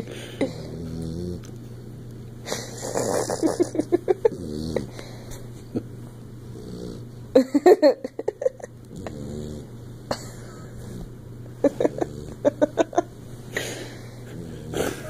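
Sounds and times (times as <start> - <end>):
dog snoring: 0.4 - 1.5, 2.5 - 5.1, 6.5 - 7.2, 8.9 - 9.8, 11.7 - 12.6, 14.2 - 15.0.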